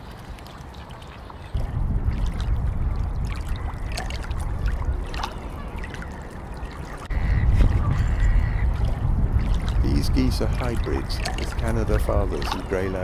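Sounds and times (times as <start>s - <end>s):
wind rumbling on microphone: 0.0s - 13.0s
bird calls: 4.8s - 8.9s.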